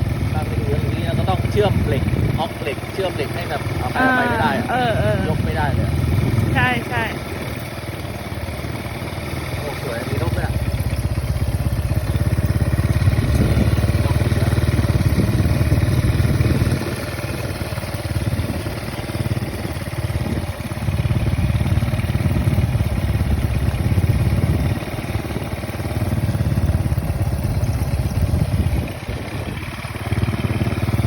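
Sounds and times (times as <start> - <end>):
small engine running: 0.0 - 31.0.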